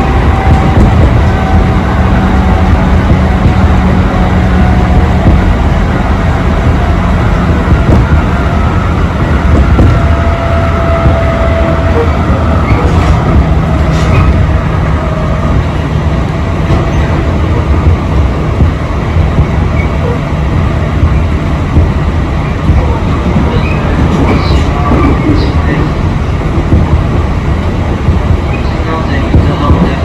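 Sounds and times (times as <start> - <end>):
train rumble inside carriage: 0.0 - 30.0.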